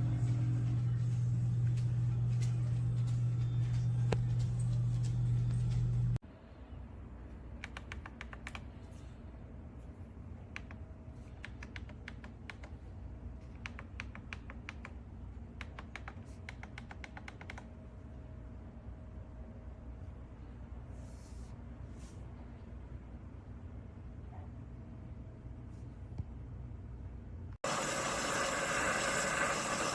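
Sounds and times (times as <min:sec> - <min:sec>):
coffee brewer pump humming: 0:27.6 - 0:29.9.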